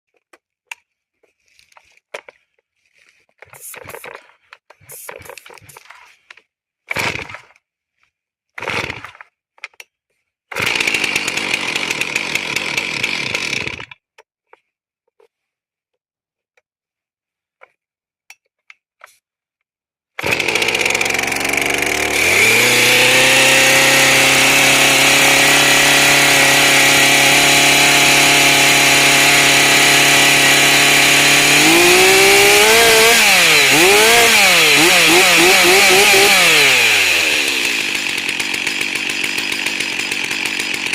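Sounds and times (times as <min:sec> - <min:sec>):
chainsaw starting and revving: 0:06.9 - 0:07.6, 0:08.6 - 0:09.2, 0:10.5 - 0:14.0, 0:20.2 - 0:40.9.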